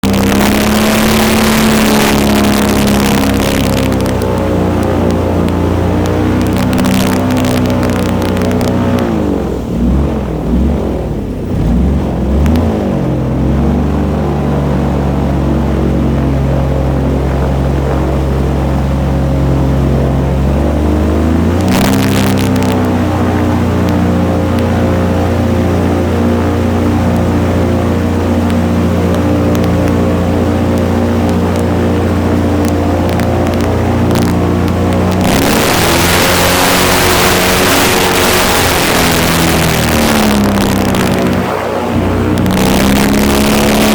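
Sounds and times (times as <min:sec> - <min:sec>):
airboat engine and propeller: 0:00.0 - 0:43.9
loud rush of air: 0:33.5 - 0:43.9.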